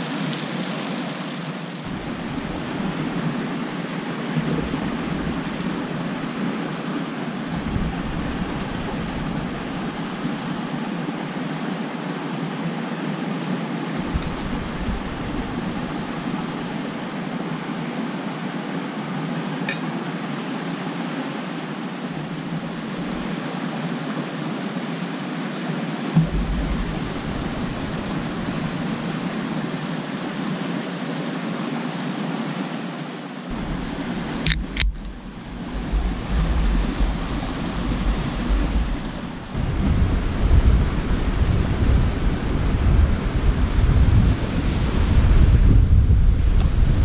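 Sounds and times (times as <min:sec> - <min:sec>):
lake water: 0:00.0 - 0:47.0
wind: 0:00.0 - 0:47.0
wind buffeting microphone: 0:01.8 - 0:10.9, 0:14.0 - 0:17.5, 0:22.1 - 0:23.4, 0:26.2 - 0:29.8, 0:33.5 - 0:47.0
sharp clicks: 0:34.4 - 0:35.2.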